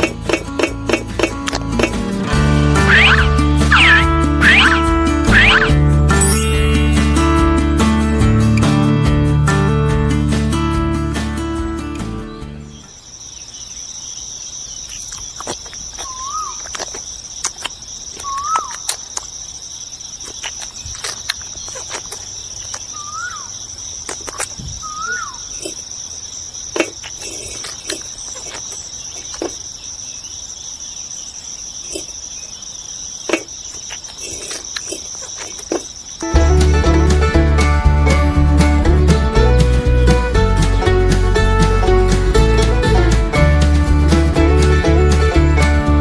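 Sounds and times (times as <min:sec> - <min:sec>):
insect chorus: 0:00.0 - 0:07.8, 0:12.0 - 0:37.3
bird chirps: 0:02.8 - 0:07.5, 0:12.3 - 0:36.3.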